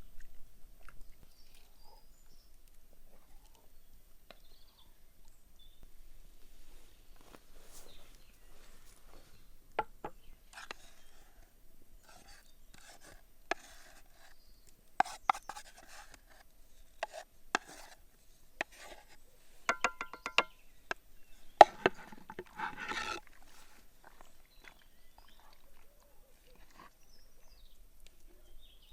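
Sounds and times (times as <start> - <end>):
fork clinking on a plate: 19.7 - 20.6.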